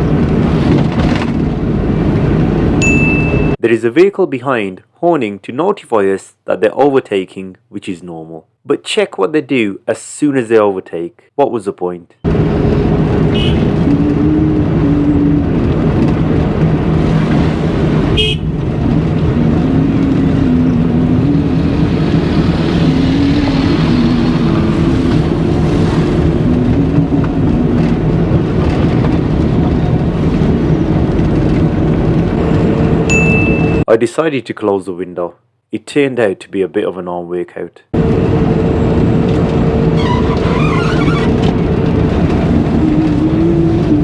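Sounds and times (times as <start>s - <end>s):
engine and road rumble: 0.0s - 3.7s, 12.1s - 33.9s, 37.9s - 44.0s
vehicle horns: 13.3s - 13.8s, 18.1s - 18.6s.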